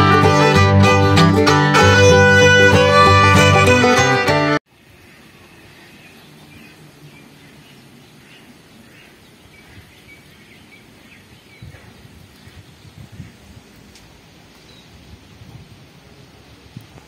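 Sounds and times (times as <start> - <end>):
small birds chirping: 4.8 - 15.6.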